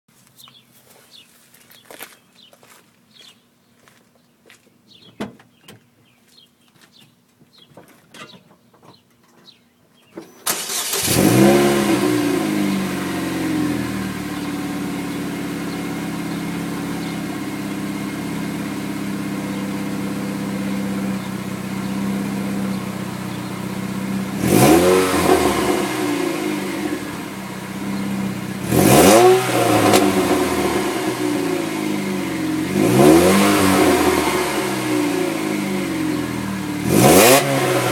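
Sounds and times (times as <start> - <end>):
car engine starting and idling: 10.4 - 37.9
engine revving: 10.5 - 37.9.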